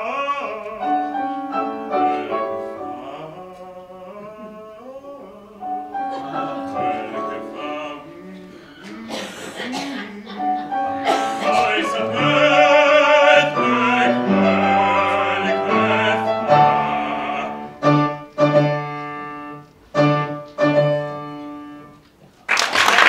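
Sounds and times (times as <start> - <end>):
operatic singing: 0.0 - 18.3
piano: 0.0 - 23.0
applause: 22.4 - 23.0.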